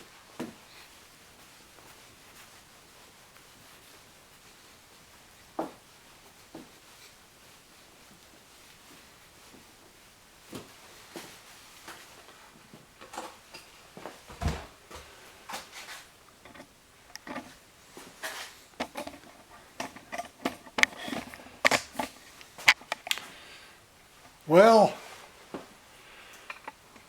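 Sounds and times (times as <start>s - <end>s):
rustling: 0.0s - 27.0s
clicks and light knocks: 14.4s - 17.6s, 18.2s - 23.3s, 26.3s - 27.0s.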